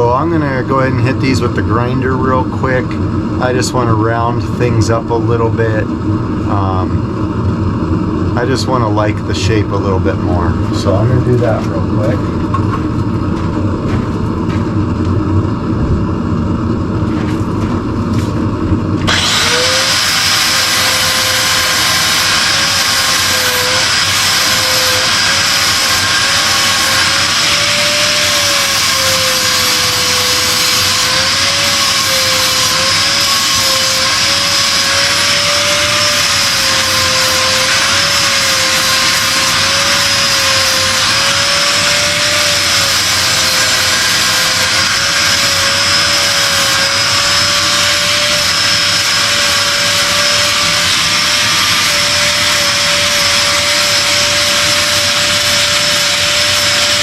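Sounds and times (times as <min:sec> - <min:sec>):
grinder against steel: 0:19.0 - 0:57.0.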